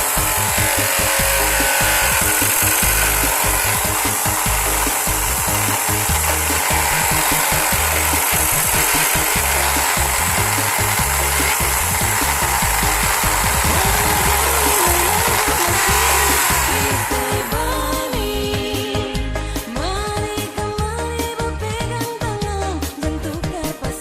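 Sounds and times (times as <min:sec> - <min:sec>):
tool scraping spinning wood: 0:00.0 - 0:18.7
drill powered lathe spinning: 0:00.0 - 0:18.8.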